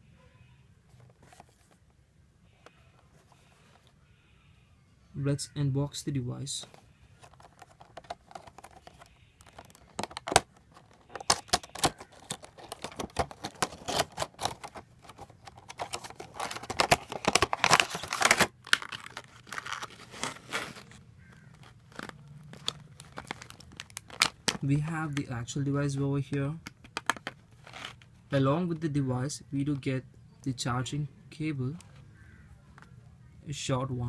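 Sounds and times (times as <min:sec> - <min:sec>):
packaging rustling and tearing: 0:07.2 - 0:24.6, 0:26.9 - 0:28.1.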